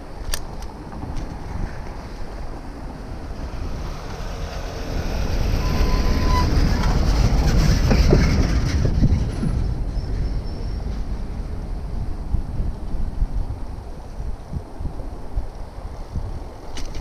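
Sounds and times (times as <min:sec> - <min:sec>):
rail vehicle clattering past: 0:00.0 - 0:12.4
wind on microphone: 0:00.0 - 0:17.0
high squeals: 0:03.6 - 0:11.1.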